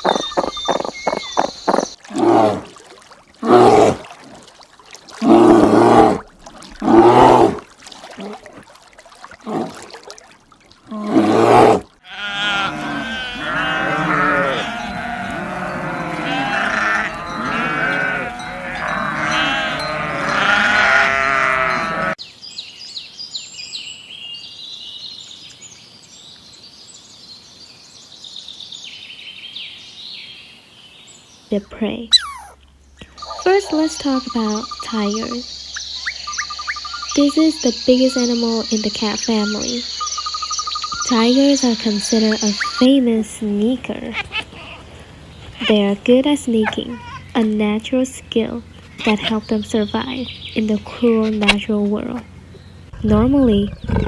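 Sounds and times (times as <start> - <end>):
high-pitched chirping calls: 0.0 - 2.0, 32.1 - 43.0
livestock bleating: 12.0 - 22.2.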